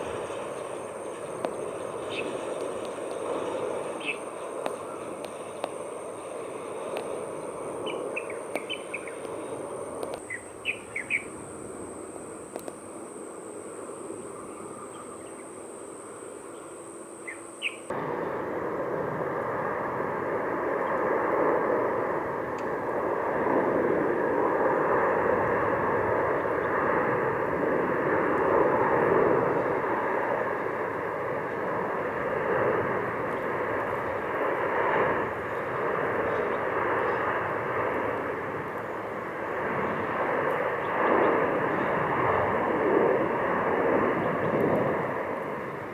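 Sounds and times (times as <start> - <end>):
insect drone: 0.0 - 45.9
jet airliner engines: 0.0 - 45.9
birds chirping: 0.4 - 12.9, 13.8 - 17.9.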